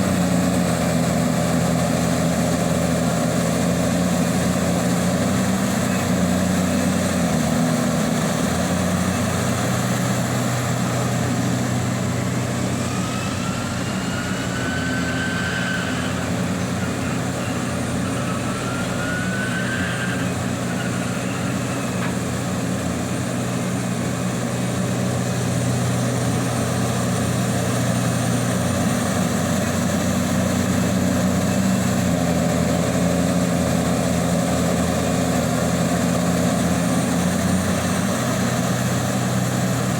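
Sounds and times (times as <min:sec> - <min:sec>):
excavator diesel engine running: 0:00.0 - 0:39.9
rising hydraulic whines: 0:08.7 - 0:24.4.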